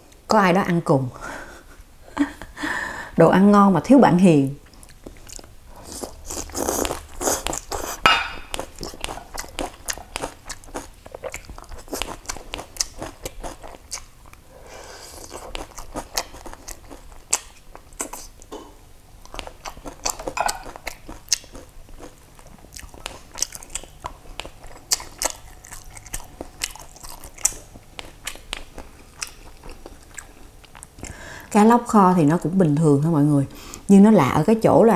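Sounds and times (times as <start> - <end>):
person chewing food: 4.6 - 31.4.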